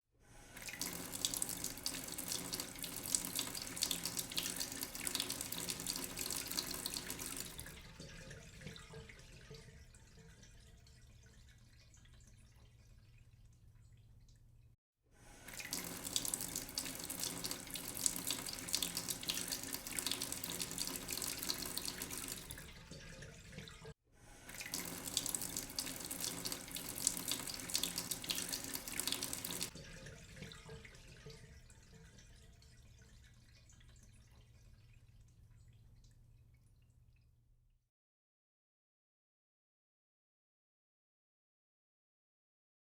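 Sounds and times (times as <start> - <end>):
tap water splashing into sink: 0.6 - 12.7, 15.5 - 34.5.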